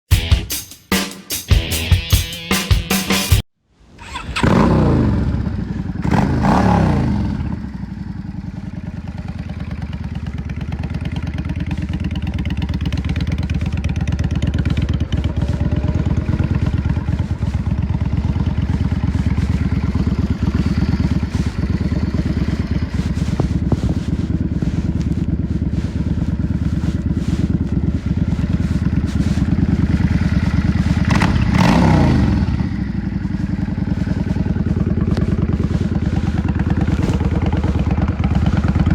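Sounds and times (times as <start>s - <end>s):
motorcycle engine running: 4.1s - 38.9s.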